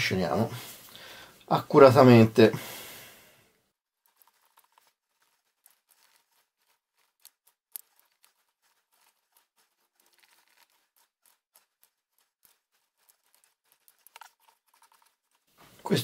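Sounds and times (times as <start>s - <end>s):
stick stirring rubber in plastic cup: 4.0s - 16.0s.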